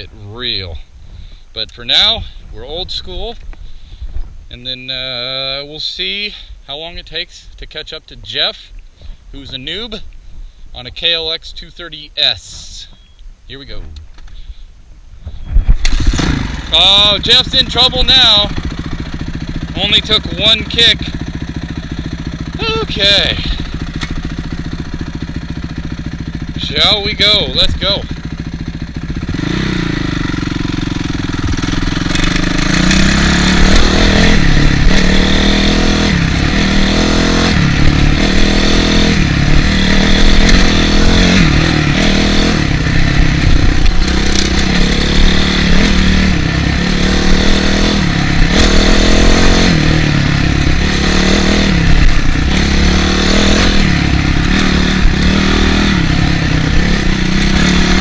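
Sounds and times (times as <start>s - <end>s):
motocross engine revving: 15.8s - 58.0s.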